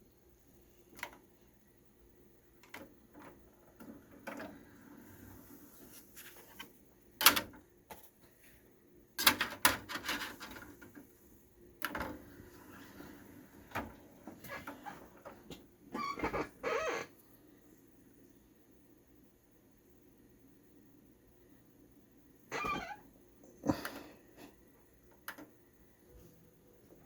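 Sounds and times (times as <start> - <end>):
cd changer tray clicks and clunks: 7.2 - 7.6.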